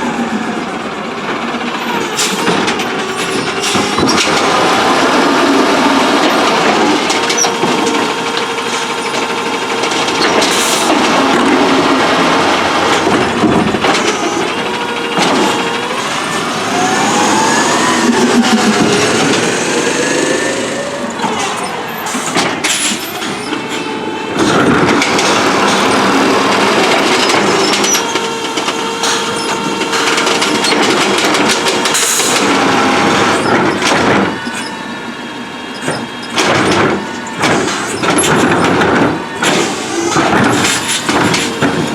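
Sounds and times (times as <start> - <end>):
garbage truck engine running: 0.0 - 41.9
hydraulic drive whining: 1.9 - 41.9
sharp knocks and bangs: 6.2 - 34.5.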